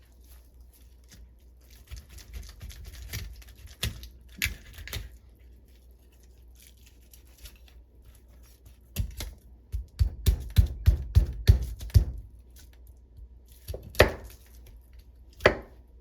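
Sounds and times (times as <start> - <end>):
knife chopping on cutting board: 9.0 - 12.3, 13.6 - 14.4, 15.4 - 15.8.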